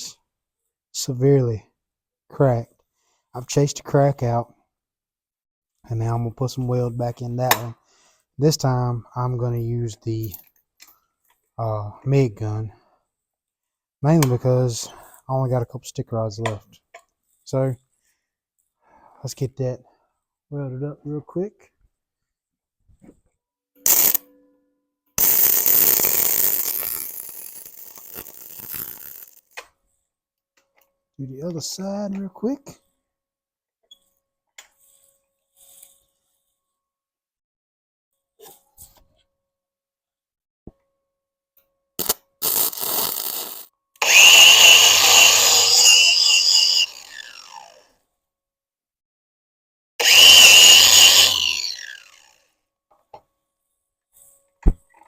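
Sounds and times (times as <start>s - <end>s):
angle grinder grinding steel: 23.9s - 24.2s, 42.4s - 47.9s, 50.0s - 52.4s
welder arc crackling and hissing: 23.9s - 24.2s, 25.2s - 29.4s.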